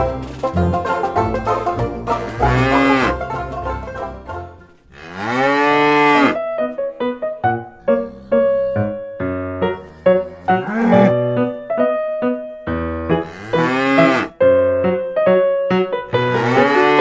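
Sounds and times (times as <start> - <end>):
keyboard melody plucked notes: 0.0 - 4.8, 6.0 - 17.0
cow mooing: 2.2 - 3.2, 4.9 - 6.4, 9.7 - 11.2, 13.2 - 14.4, 16.2 - 17.0.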